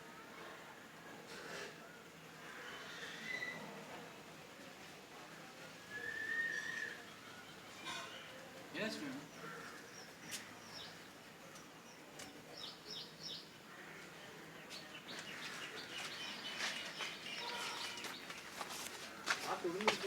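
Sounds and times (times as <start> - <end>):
small birds chirping: 6.5 - 20.0.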